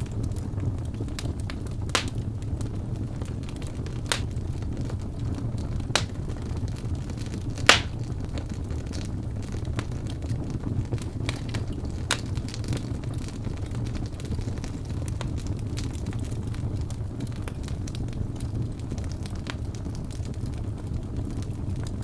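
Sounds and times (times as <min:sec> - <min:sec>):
fire crackling: 0:00.0 - 0:22.0
fireplace flames rumbling: 0:00.0 - 0:22.0
sharp fire pops: 0:01.2 - 0:02.6, 0:03.5 - 0:04.7, 0:05.8 - 0:06.6, 0:07.2 - 0:08.6.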